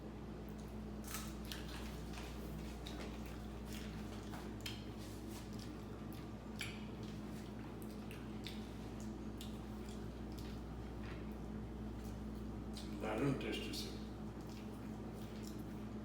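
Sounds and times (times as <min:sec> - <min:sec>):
squishy mouth noises: 0:14.3 - 0:15.9.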